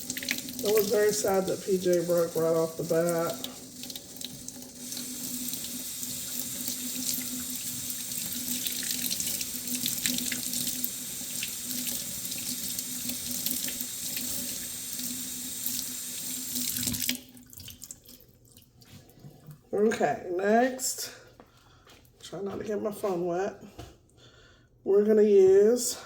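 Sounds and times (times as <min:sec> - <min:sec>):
tap water running into sink: 0:00.0 - 0:18.2.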